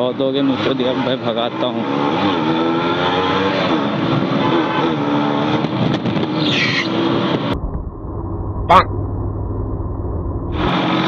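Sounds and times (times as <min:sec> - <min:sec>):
motorcycle engine accelerating: 0:00.4 - 0:11.0.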